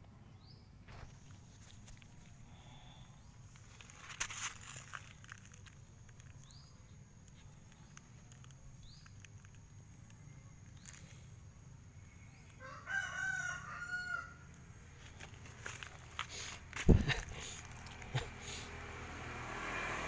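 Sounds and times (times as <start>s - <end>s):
rooster crowing: 12.6s - 14.5s.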